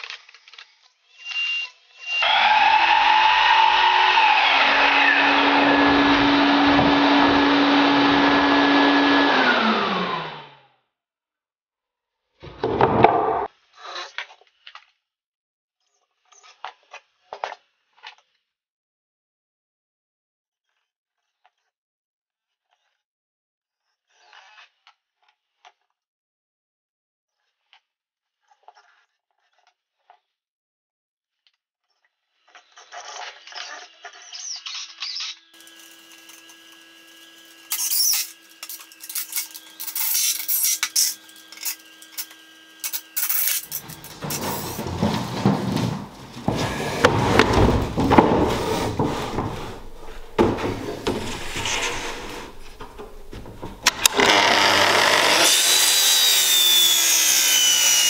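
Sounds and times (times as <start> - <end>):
power tool whining: 1.2 - 10.6, 35.6 - 58.0
tools scraping and knocking wood: 35.6 - 55.9.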